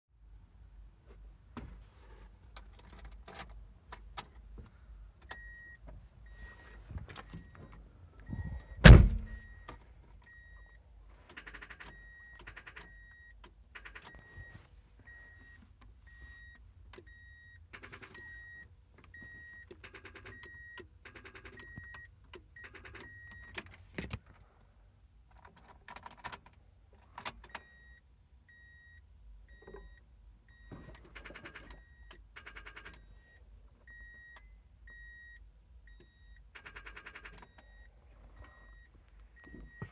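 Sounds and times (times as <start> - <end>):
car warning chime beeping: 5.2 - 23.6, 27.4 - 39.9
loud clunk: 8.8 - 9.4.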